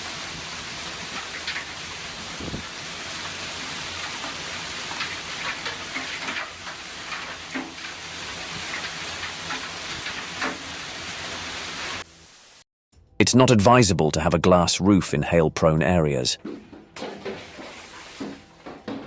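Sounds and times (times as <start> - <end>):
hailstones hitting hard surfaces: 0.0 - 11.2
hail and rain pouring: 0.0 - 12.0.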